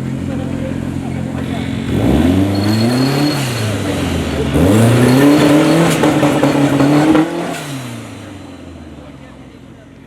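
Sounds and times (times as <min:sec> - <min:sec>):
truck engine revving: 0:00.0 - 0:08.5.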